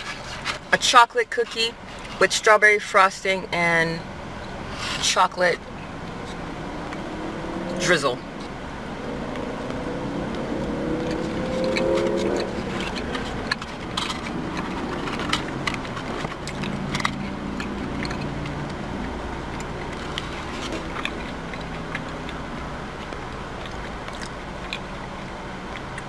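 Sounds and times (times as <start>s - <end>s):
vehicle humming: 1.7s - 26.0s
rising tone: 6.0s - 13.6s
sharp clicks and crackles: 11.0s - 26.0s.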